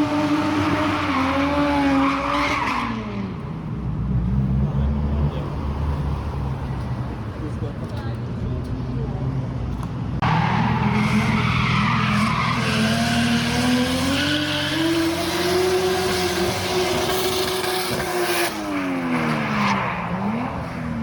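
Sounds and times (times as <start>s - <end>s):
car engine revving: 10.2s - 21.0s.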